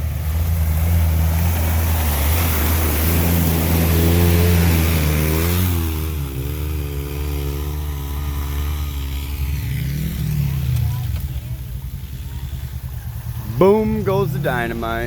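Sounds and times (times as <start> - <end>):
utility vehicle engine revving: 0.0 - 15.0.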